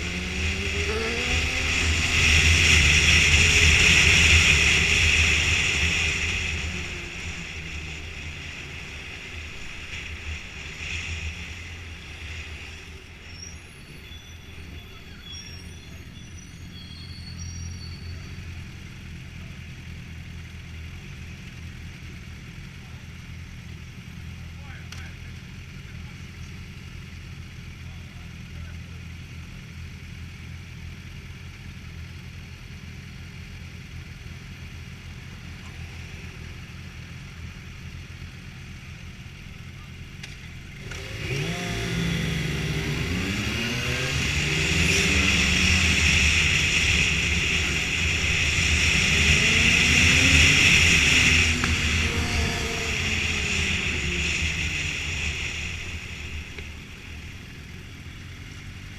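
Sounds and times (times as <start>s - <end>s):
motorcycle engine revving: 0.0s - 13.1s, 25.2s - 58.9s.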